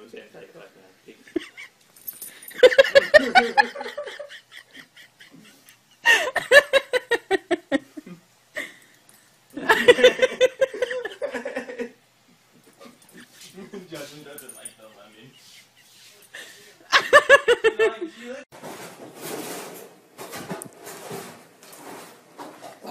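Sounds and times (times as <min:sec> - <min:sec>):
person laughing hard: 0:02.6 - 0:08.7, 0:09.6 - 0:12.0.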